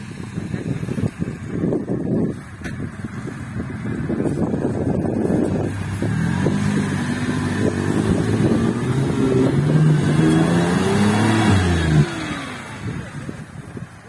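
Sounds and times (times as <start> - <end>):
off-road vehicle engine revving: 3.8 - 13.6.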